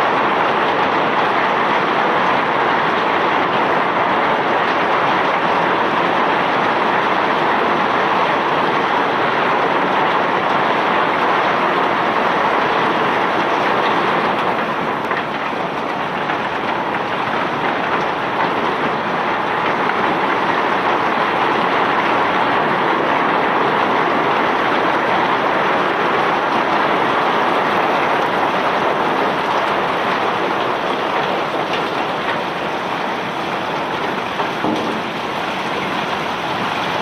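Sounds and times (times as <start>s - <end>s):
ore and rock rattling off conveyor: 33.9s - 37.0s.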